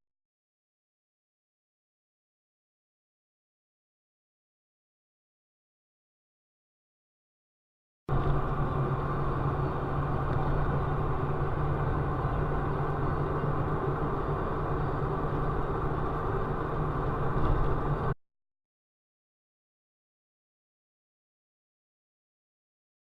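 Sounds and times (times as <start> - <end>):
vehicle engine and road noise: 8.1 - 18.2.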